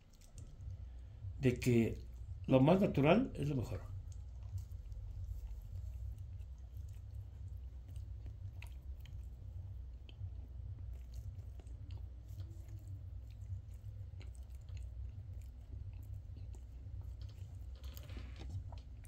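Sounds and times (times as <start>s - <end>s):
person chewing food: 0.0s - 19.0s
steady low rumble: 0.0s - 19.0s.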